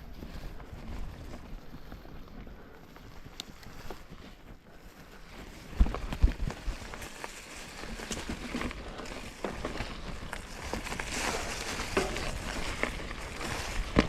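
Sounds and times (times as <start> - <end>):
bike tyres crackling over trail: 0.0 - 14.0
bike thumps and clatter: 7.8 - 14.0.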